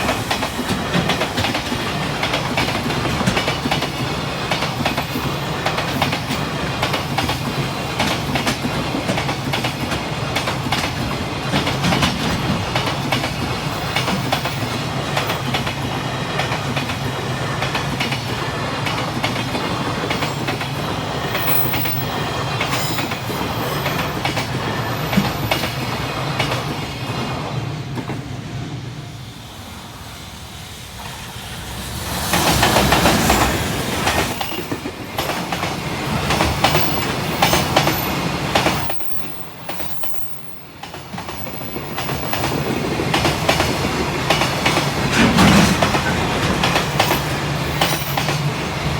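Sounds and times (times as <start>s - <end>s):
train wheels clacking on rails: 0.0s - 28.4s, 30.9s - 48.9s
loud rush: 29.4s - 34.7s.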